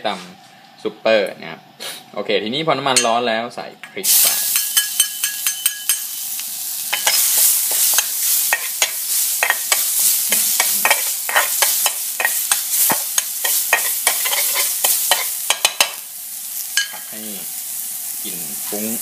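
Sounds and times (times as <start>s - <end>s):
chillies sizzling in hot oil: 4.0s - 19.0s
metal spatula scraping a pan: 7.0s - 15.9s.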